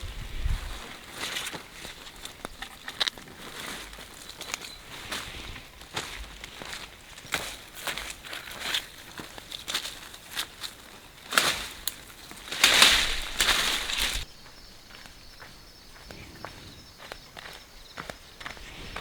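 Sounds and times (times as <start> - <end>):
crunching rustle: 0.0 - 14.3
rustling: 0.0 - 14.3
footsteps outdoors: 0.0 - 19.0.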